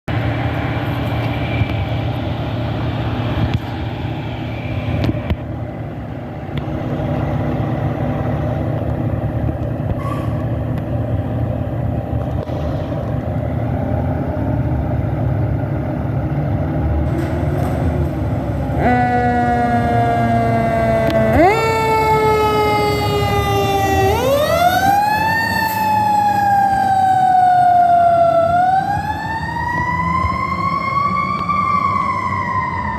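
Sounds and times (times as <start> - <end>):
diesel engine rumbling: 0.0 - 32.9
loud warning tone: 18.6 - 31.2.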